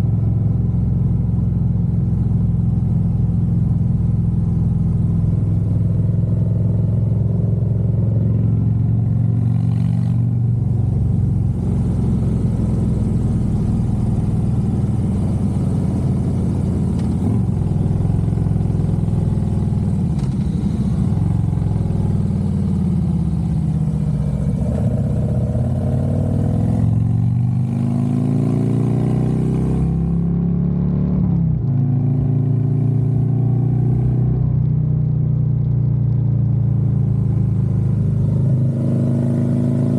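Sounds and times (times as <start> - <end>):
motorcycle engine running: 0.0 - 30.3.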